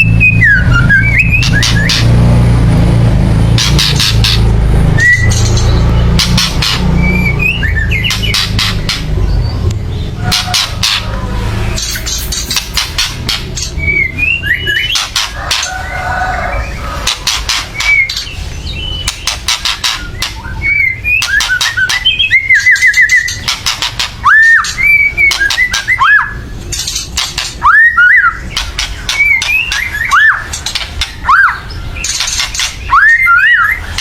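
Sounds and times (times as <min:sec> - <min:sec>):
bird whistled notes: 0:00.0 - 0:02.1, 0:05.0 - 0:05.7, 0:06.3 - 0:09.6, 0:13.7 - 0:15.4, 0:16.5 - 0:34.0
bird harsh crackling calls: 0:00.0 - 0:02.4, 0:03.3 - 0:34.0.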